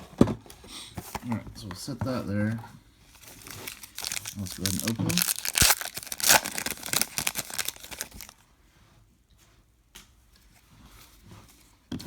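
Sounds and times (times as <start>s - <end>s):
wrapper being torn and crinkled: 3.2s - 8.4s.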